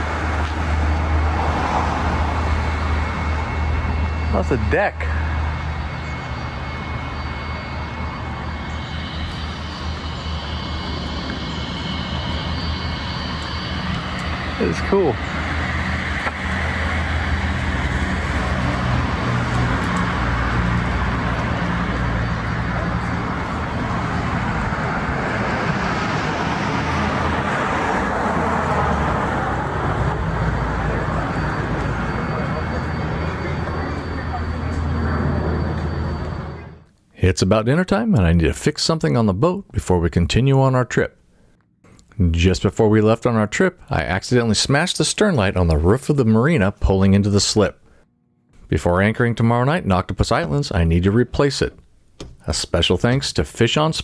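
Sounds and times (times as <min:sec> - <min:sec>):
low engine rumble: 0:00.0 - 0:36.9
motor vehicle running: 0:00.0 - 0:36.9
faint high whine: 0:00.0 - 0:54.0.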